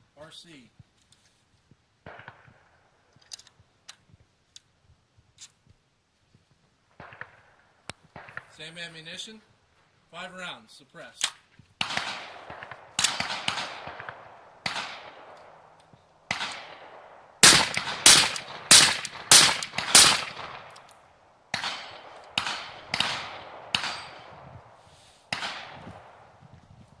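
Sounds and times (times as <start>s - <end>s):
suppressed rifle shots: 2.1s - 2.5s, 11.8s - 15.6s, 16.3s - 20.8s, 21.5s - 24.4s, 25.3s - 25.9s.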